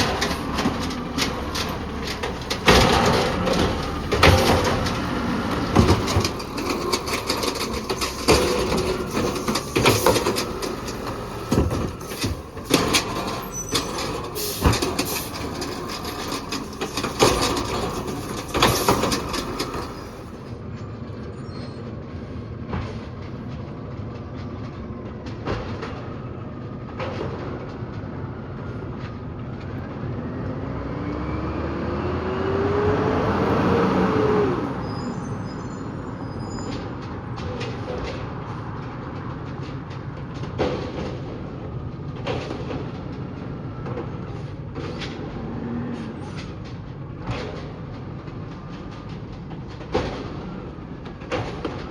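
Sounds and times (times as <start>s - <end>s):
metal clanks and bangs: 0.0s - 20.5s, 36.2s - 51.9s
truck engine revving: 0.0s - 20.5s, 30.2s - 36.1s.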